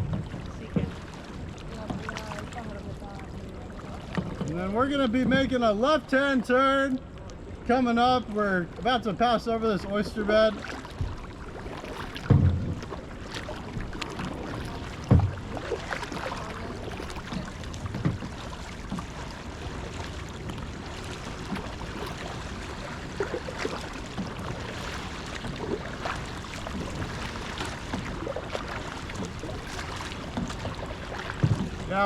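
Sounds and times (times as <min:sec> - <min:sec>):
paddle splashing in water: 0:00.0 - 0:07.7, 0:09.6 - 0:32.0
low thumps: 0:12.2 - 0:13.0, 0:14.9 - 0:16.1.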